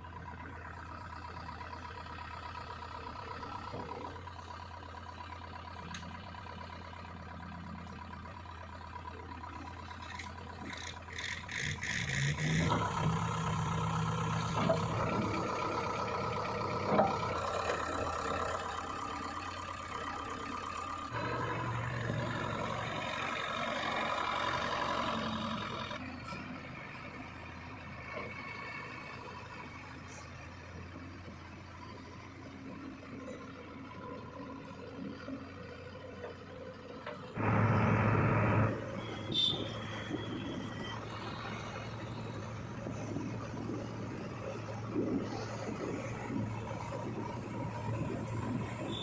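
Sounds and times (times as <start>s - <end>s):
diesel engine revving: 9.2s - 32.0s, 33.1s - 49.0s.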